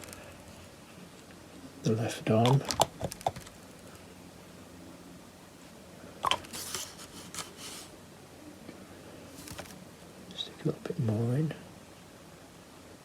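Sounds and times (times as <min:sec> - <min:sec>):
soft scratchy rustling: 0:06.4 - 0:08.0, 0:09.2 - 0:09.8.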